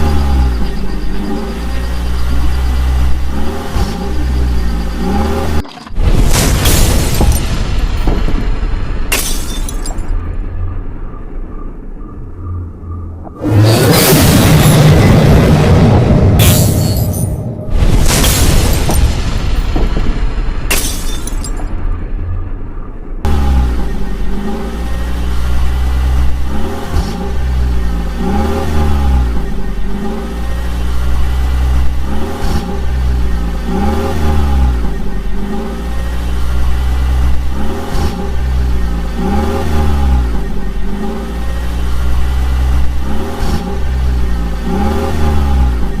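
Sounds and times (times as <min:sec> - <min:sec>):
engine revving: 0:00.0 - 0:05.6, 0:13.3 - 0:16.4, 0:23.2 - 0:46.0.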